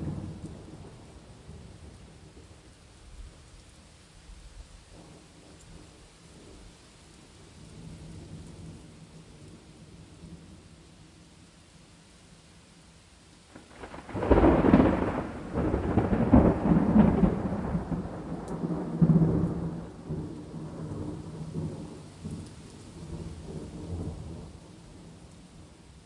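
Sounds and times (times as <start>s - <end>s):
thunder rumbling: 0.0s - 2.6s, 13.5s - 25.2s
steady rain: 0.0s - 26.0s.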